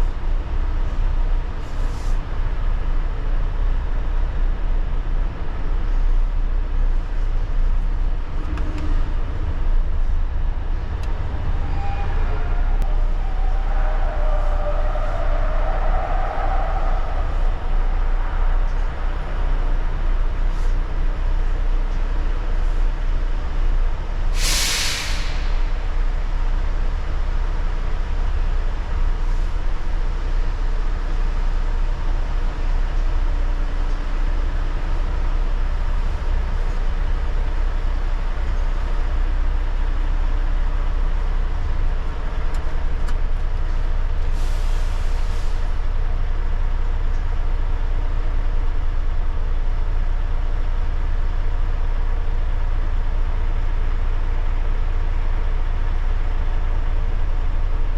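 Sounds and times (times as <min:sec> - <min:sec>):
truck diesel engine rumbling: 0:00.0 - 0:57.9
air brakes hissing: 0:24.2 - 0:26.5, 0:44.2 - 0:45.9.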